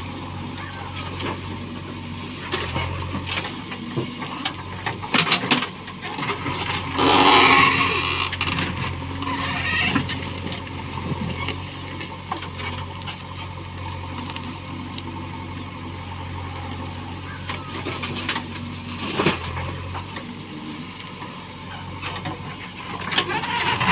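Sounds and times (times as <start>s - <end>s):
heavy diesel machinery running: 0.0s - 23.9s
loud rushing scraping burst: 6.9s - 8.6s.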